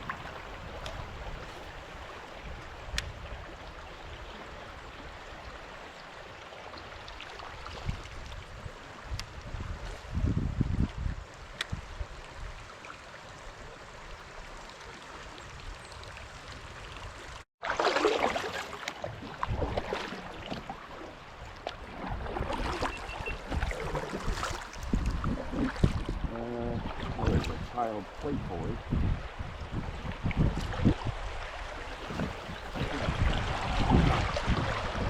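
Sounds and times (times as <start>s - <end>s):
wind rumbling on microphone: 0.0s - 5.8s, 7.6s - 12.7s, 19.1s - 20.7s, 21.3s - 35.0s
creek water running: 0.0s - 35.0s.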